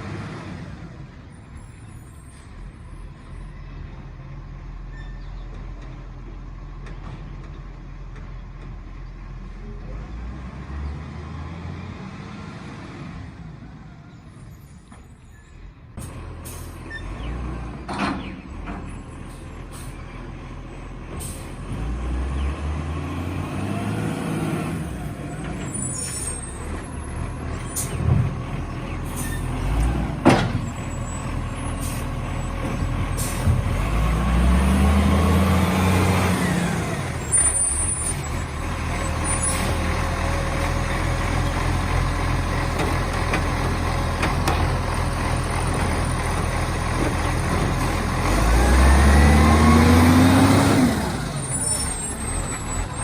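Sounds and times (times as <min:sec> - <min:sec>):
diesel engine revving: 0:00.0 - 0:01.9, 0:02.5 - 0:13.8, 0:16.0 - 0:53.0
sharp knocks and clanks: 0:30.2 - 0:30.7, 0:42.6 - 0:44.8.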